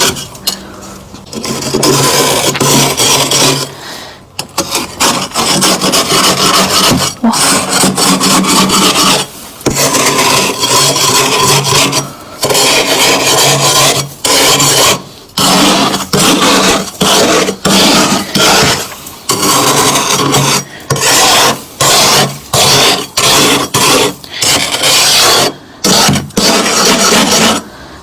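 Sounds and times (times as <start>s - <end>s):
frost being scraped: 0.0s - 27.8s.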